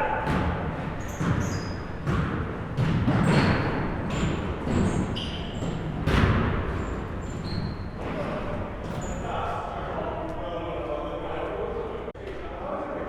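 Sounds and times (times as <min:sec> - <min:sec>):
sneaker squeaks: 0:00.0 - 0:09.6
basketball bouncing on gym floor: 0:00.1 - 0:09.1.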